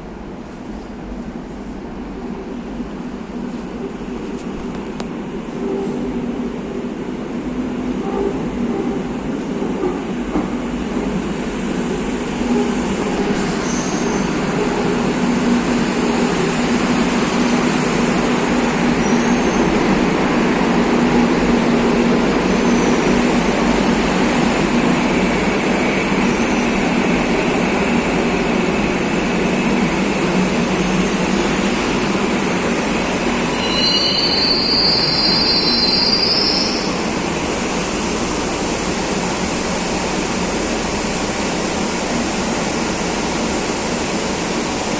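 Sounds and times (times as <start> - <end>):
metro train rumbling on rails: 0.0 - 44.9
high wheel squeal: 33.4 - 37.0.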